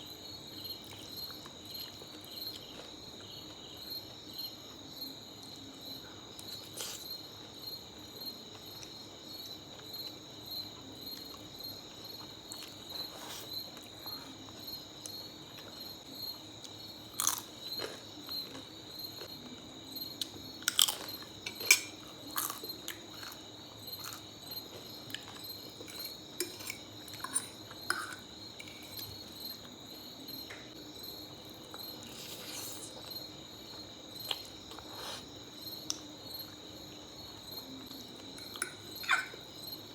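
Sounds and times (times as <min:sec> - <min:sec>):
crickets chirping: 0:00.0 - 0:39.9
person chewing spaghetti: 0:16.6 - 0:18.7, 0:34.1 - 0:36.0.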